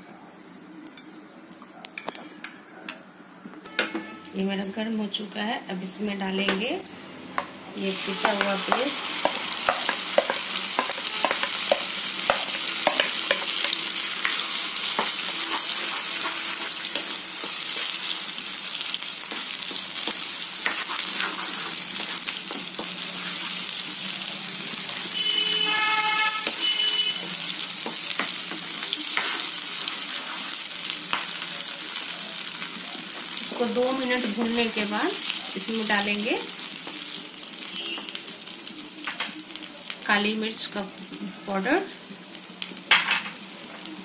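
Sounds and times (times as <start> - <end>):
paste sizzling in hot oil: 7.8 - 40.8
spoon scraping against a pan: 8.0 - 18.2, 18.8 - 24.0, 24.9 - 31.3.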